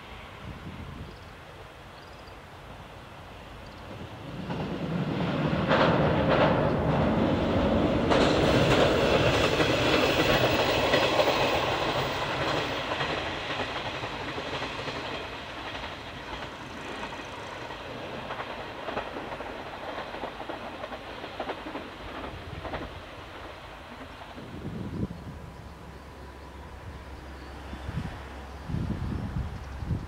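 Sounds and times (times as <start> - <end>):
railcar wheels clicking over rails: 3.6 - 26.8.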